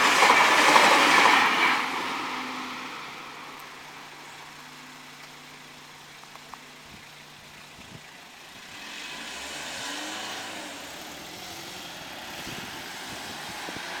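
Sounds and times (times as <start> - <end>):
vehicle passing close by: 8.5 - 14.0.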